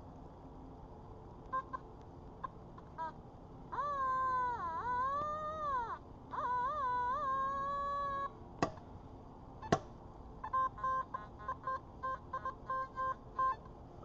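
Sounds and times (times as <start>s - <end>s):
sharp knocks: 8.6s - 8.8s, 9.7s - 10.0s.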